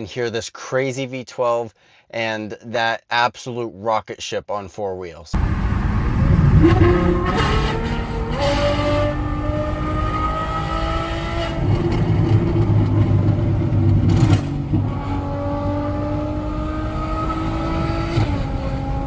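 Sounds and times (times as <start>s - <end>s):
exhaust crackle: 5.4s - 19.0s
sports car engine accelerating: 5.4s - 19.0s.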